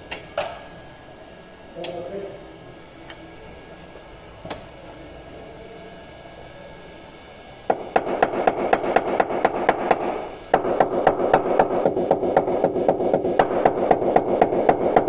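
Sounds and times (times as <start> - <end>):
hammer tapping sheet metal: 7.7 - 15.0.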